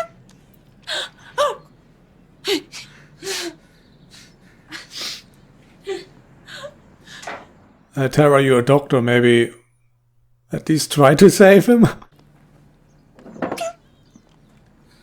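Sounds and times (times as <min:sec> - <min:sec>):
person gasping: 0:02.5 - 0:05.3.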